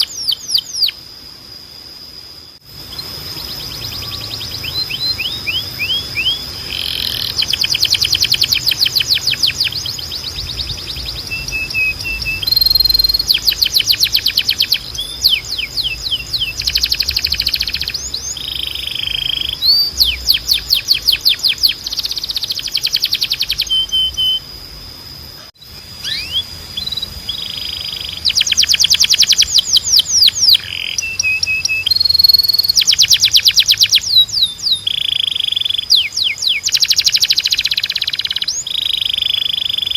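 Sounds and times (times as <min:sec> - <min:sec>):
canary singing trills: 0:00.0 - 0:01.2, 0:02.4 - 0:24.6, 0:25.2 - 0:39.9
steady high tone: 0:02.4 - 0:28.1.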